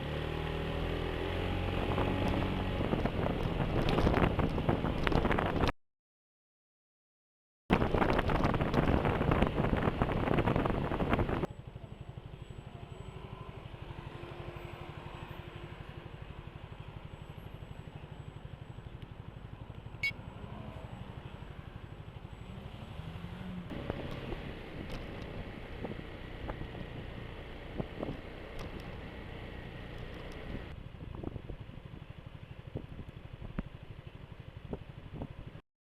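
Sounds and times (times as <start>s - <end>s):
road noise: 0.0s - 5.7s, 7.7s - 35.6s
scooter engine humming: 0.0s - 5.7s, 7.8s - 35.6s
wind noise on microphone: 1.7s - 5.7s, 7.7s - 11.5s, 23.7s - 33.7s, 34.6s - 35.6s.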